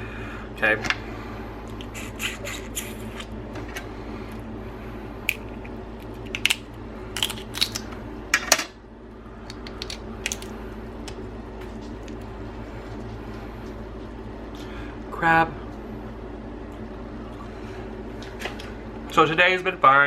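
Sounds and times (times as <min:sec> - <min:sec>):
steady background hum: 0:00.0 - 0:20.0
crab shells cracking: 0:05.2 - 0:08.0, 0:09.4 - 0:11.2.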